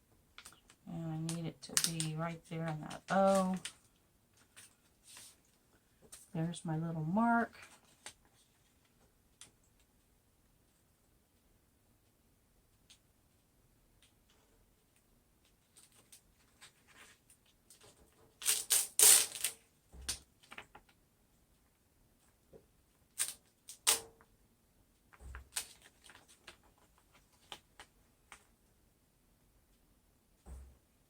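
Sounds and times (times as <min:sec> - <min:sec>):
small clicks and taps: 0:00.3 - 0:02.1
paper crinkling: 0:02.9 - 0:05.6, 0:25.3 - 0:28.0.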